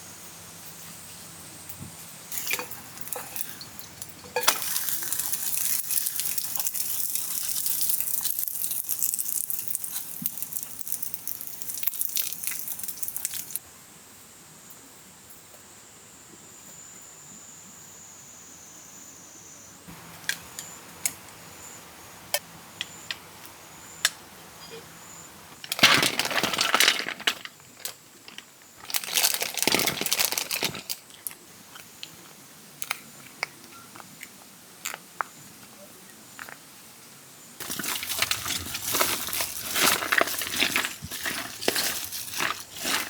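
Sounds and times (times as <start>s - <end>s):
crinkling handling noise: 2.3s - 13.6s, 25.5s - 34.1s, 37.6s - 43.0s.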